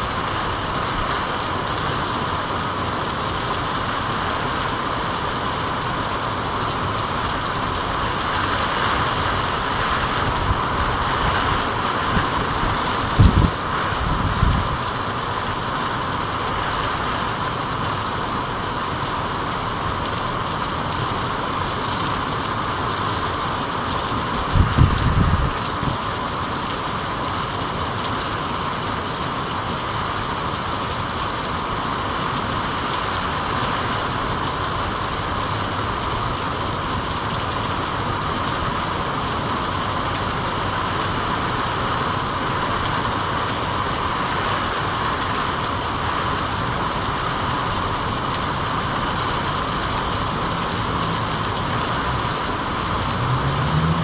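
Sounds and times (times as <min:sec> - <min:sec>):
steady rain hissing: 0:00.0 - 0:54.0.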